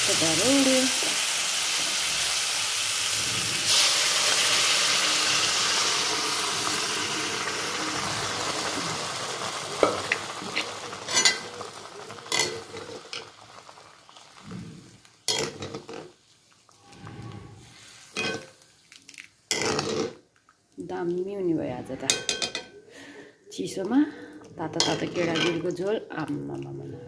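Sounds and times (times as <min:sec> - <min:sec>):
beans sizzling in hot oil: 0:00.0 - 0:16.9, 0:17.6 - 0:20.1.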